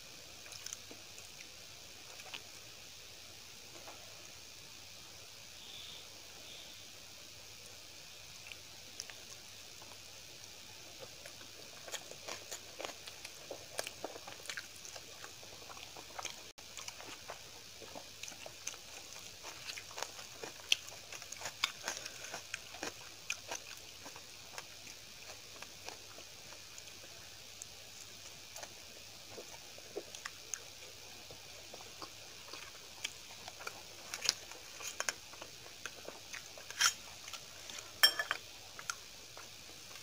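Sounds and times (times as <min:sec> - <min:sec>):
close chewing with wet smacks: 0:00.4 - 0:02.5, 0:08.3 - 0:37.9.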